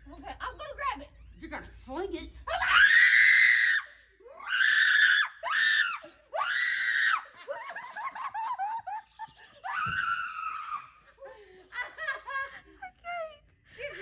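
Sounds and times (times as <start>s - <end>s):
woman screaming: 2.5s - 7.3s.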